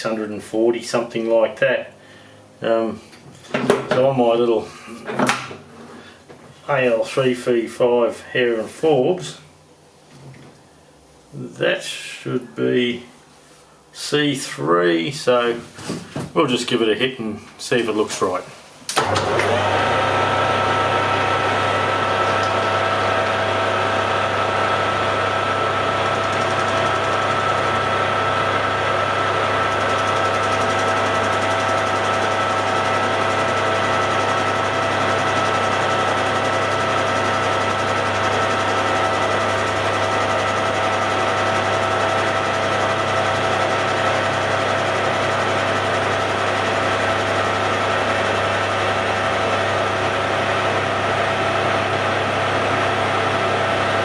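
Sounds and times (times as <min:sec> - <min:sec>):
low motor hum: 0:19.0 - 0:54.0
metal lathe gearing whine: 0:19.0 - 0:54.0.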